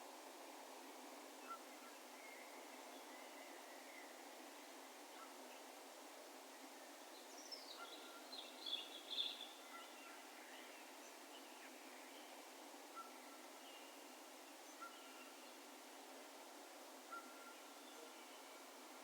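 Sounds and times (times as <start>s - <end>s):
low background hiss: 0.0s - 19.0s
faint whistled bird notes: 17.1s - 18.6s.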